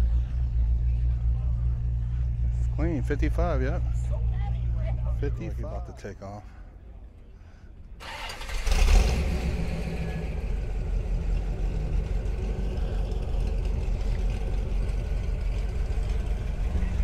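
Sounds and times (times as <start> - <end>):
car engine revving and idling: 8.1 - 17.0.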